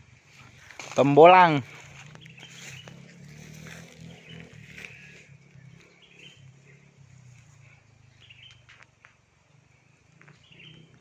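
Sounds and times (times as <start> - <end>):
faint bird chirps: 2.0 - 8.9, 9.5 - 11.0.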